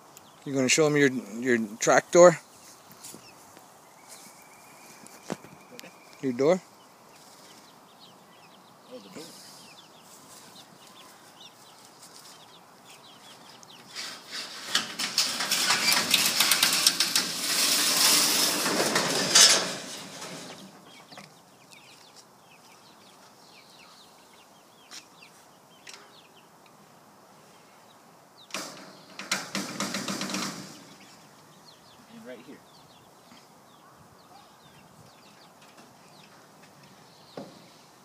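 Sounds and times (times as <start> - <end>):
loud rattling scraping clicks: 14.0 - 20.8, 28.5 - 31.1
chickens clucking: 28.9 - 37.0.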